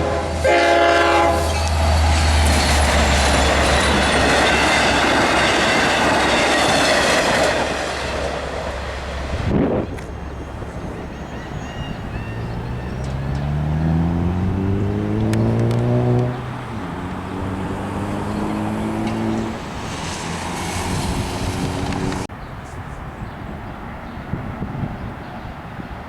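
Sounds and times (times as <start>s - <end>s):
vehicle engine accelerating: 9.4s - 22.3s.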